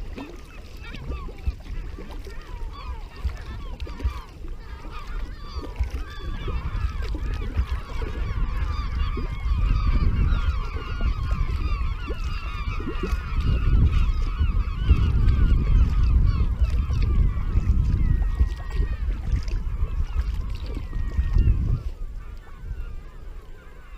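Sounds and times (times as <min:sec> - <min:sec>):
flock of birds honking: 0:00.2 - 0:23.9.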